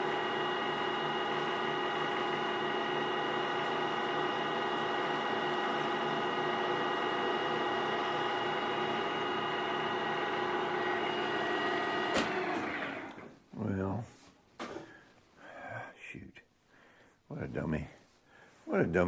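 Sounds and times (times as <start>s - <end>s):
electric motor whining: 0.0s - 13.3s.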